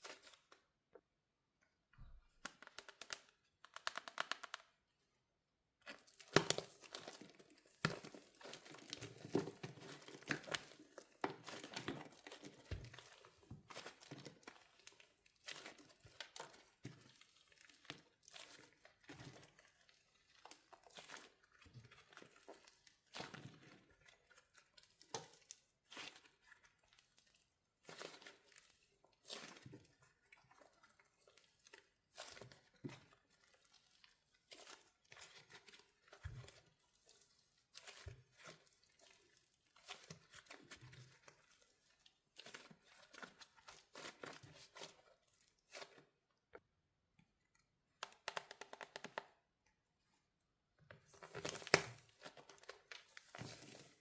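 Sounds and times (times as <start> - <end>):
wax shell cracking and crinkling: 1.9 - 5.0, 5.8 - 16.8, 47.9 - 49.5, 51.0 - 54.0.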